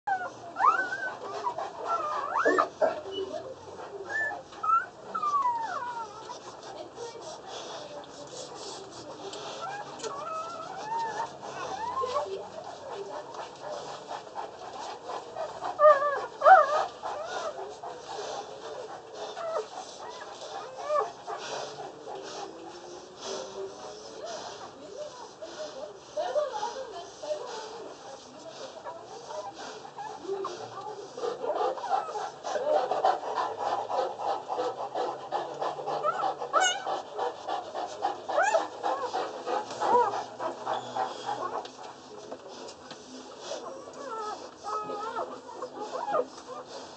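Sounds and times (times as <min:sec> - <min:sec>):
puppies squeaking and whimpering: 0:00.1 - 0:03.4, 0:04.1 - 0:06.4, 0:09.6 - 0:12.4, 0:36.0 - 0:36.9, 0:38.4 - 0:39.1, 0:43.7 - 0:46.6.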